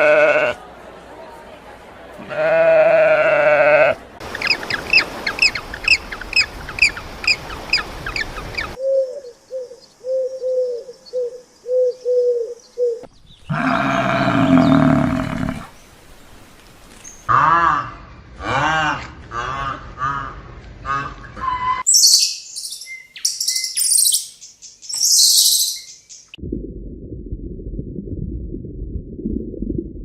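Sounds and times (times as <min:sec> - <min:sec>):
bleating animal call: 0:00.0 - 0:00.6, 0:02.2 - 0:04.0, 0:13.5 - 0:15.7
high bird chirps: 0:21.8 - 0:26.4.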